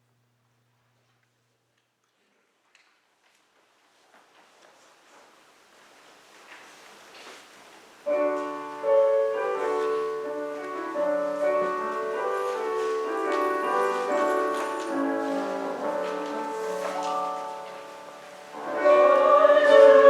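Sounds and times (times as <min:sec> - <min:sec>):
church organ playing chords: 0:08.1 - 0:20.0.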